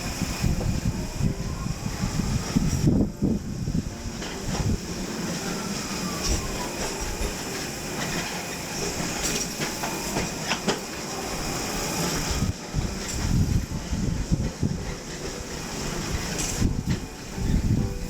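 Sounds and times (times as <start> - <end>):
tram rumbling on rails: 0.0 - 18.0
wheels knocking over rail joints: 4.2 - 13.7.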